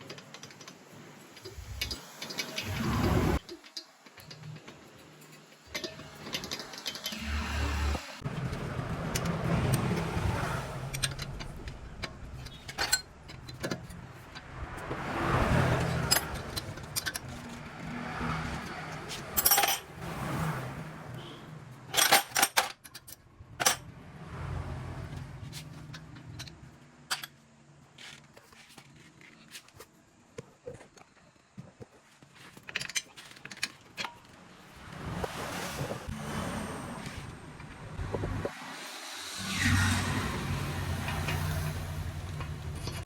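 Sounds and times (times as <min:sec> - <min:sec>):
metallic clinks and rattles: 0:00.0 - 0:07.4, 0:08.4 - 0:14.5, 0:15.7 - 0:17.9, 0:18.5 - 0:19.9, 0:21.9 - 0:23.9
vehicle engine humming: 0:06.0 - 0:21.8.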